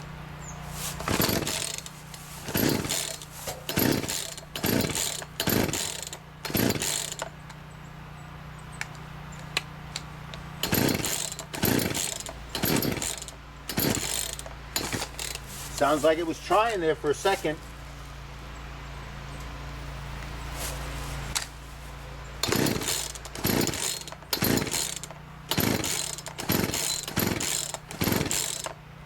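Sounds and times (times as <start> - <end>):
chainsaw engine turning over: 0.7 - 7.6, 10.0 - 17.6, 22.4 - 28.8
chainsaw starter cord pulled: 0.9 - 7.5, 10.6 - 17.3, 22.4 - 28.8.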